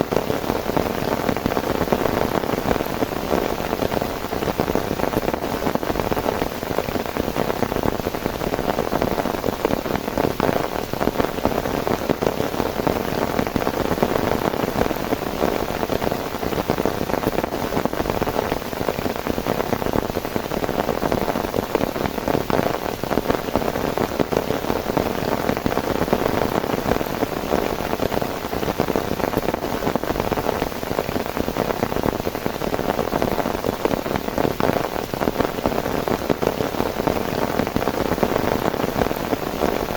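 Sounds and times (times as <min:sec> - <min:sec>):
heavy rain on a surface: 0:00.0 - 0:39.9.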